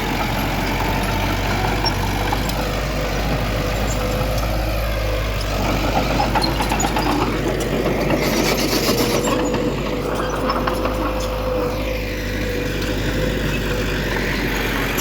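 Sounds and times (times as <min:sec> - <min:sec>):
diesel machinery running: 0:00.0 - 0:15.0.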